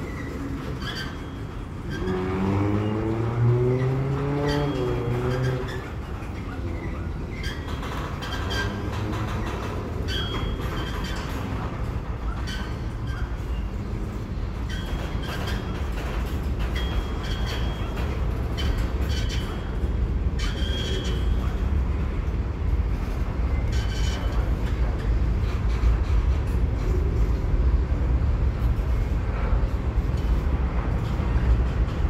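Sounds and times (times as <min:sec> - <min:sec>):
high-pitched wheel squeals: 0:00.0 - 0:11.5, 0:14.7 - 0:15.7, 0:20.4 - 0:21.6
freight train wheels rumbling on rail: 0:00.0 - 0:32.0.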